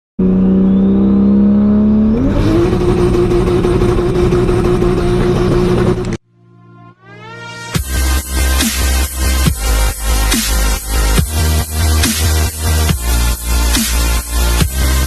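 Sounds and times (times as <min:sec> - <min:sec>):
car engine revving: 0:00.2 - 0:06.2.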